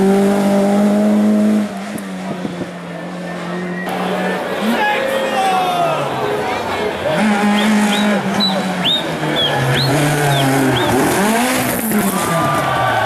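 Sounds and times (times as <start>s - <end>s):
race car engine passing: 0.0s - 13.0s.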